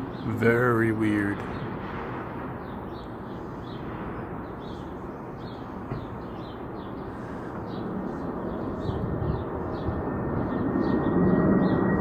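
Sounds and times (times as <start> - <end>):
small birds chirping: 0.0 - 1.8, 2.5 - 12.0.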